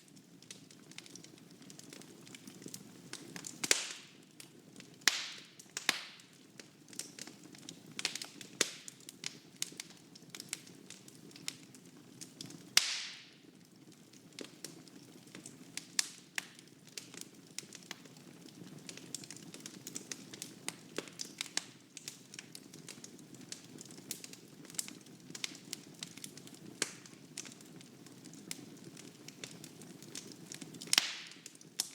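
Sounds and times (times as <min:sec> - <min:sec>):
fire crackling: 0:00.0 - 0:31.9.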